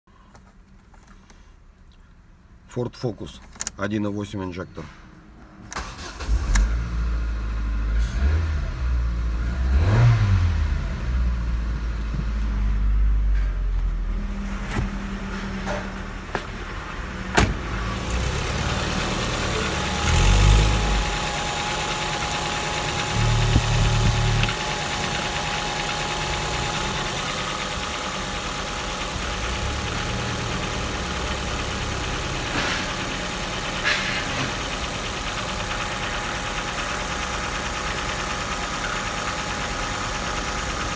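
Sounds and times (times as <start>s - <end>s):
car engine revving and idling: 6.0s - 40.9s.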